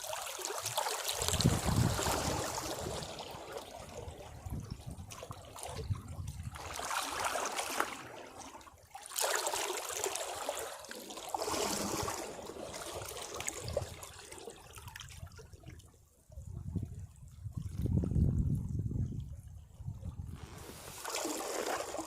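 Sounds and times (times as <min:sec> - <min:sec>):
waves breaking against rocks: 0:00.0 - 0:14.5.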